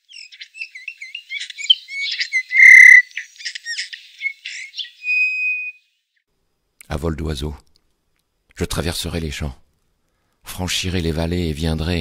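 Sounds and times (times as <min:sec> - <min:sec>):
bird chirping and whistling: 0:01.6 - 0:03.0, 0:04.3 - 0:05.7.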